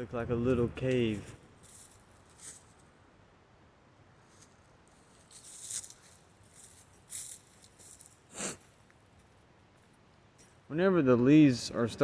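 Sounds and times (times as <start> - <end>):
footsteps on dry leaves: 1.1 - 2.9, 4.2 - 8.8.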